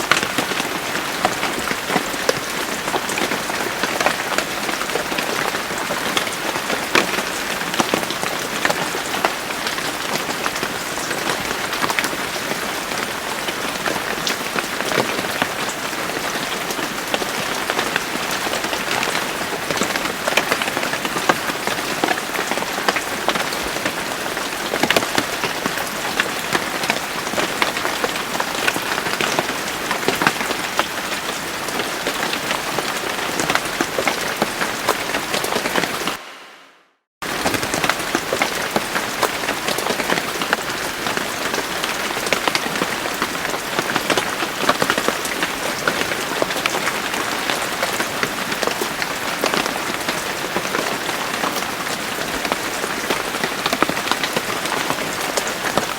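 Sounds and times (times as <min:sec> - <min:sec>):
raindrops striking close by: 0:00.0 - 0:36.2, 0:37.2 - 0:55.9.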